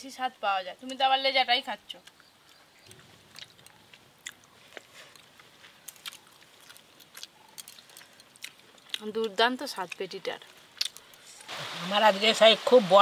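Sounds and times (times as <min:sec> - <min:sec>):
people chewing and mouth sounds: 0:01.9 - 0:11.5.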